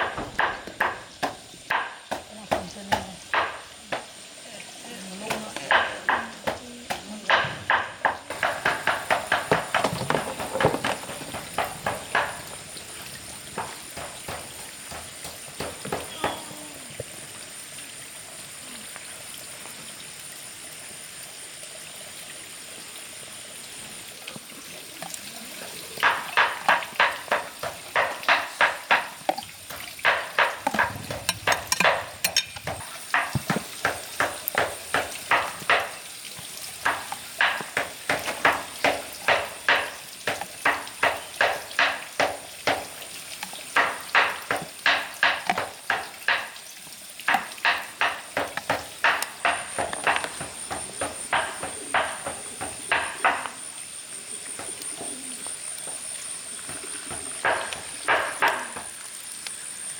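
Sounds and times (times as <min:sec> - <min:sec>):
rhythmic chopping: 0:00.0 - 0:04.2, 0:05.3 - 0:16.7, 0:47.3 - 0:53.6.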